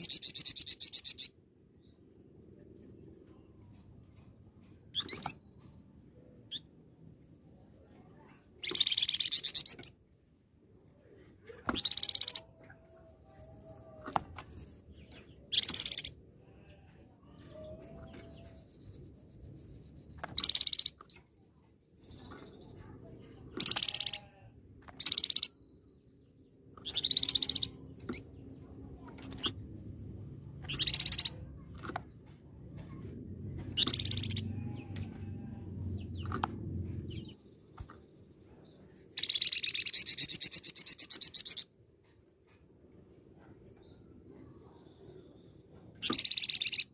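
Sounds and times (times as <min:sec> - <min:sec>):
songbird high calls and trill: 0:07.5 - 0:10.0, 0:11.8 - 0:16.7, 0:17.4 - 0:21.9, 0:25.0 - 0:26.0, 0:26.8 - 0:28.3, 0:30.6 - 0:31.7, 0:33.8 - 0:34.6, 0:38.5 - 0:41.7, 0:46.0 - 0:46.9.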